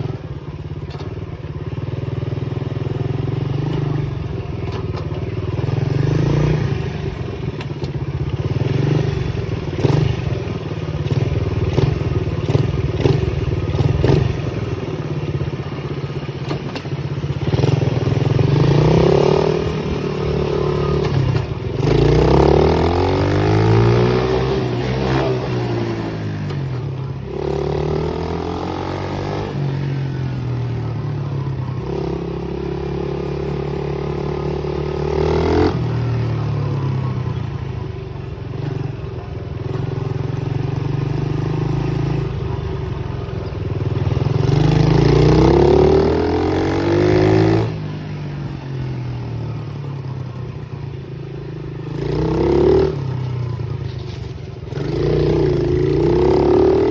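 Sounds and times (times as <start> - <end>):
pit bike engine revving: 8.2 - 15.6, 16.5 - 37.8, 38.6 - 49.3, 51.6 - 53.9, 54.7 - 56.9.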